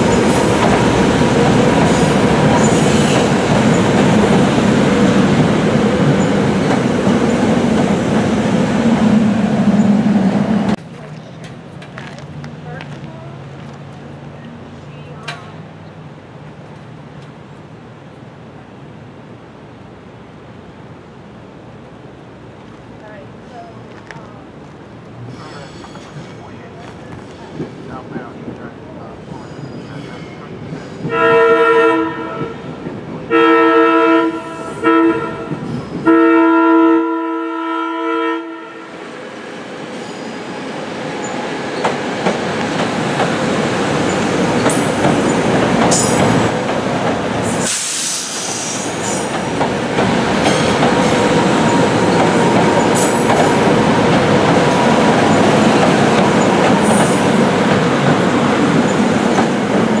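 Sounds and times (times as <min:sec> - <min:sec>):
train wheels rumbling on rail: 0:00.0 - 0:19.2, 0:21.8 - 0:33.6, 0:34.2 - 0:36.5, 0:38.8 - 1:00.0
high wheel squeals: 0:29.3 - 0:31.1
train horn blasts: 0:31.1 - 0:32.7, 0:33.3 - 0:38.9.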